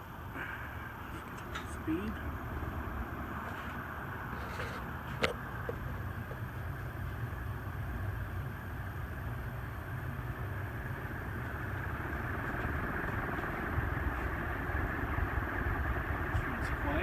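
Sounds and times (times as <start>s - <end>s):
ceiling fan air rush: 0.0s - 17.0s.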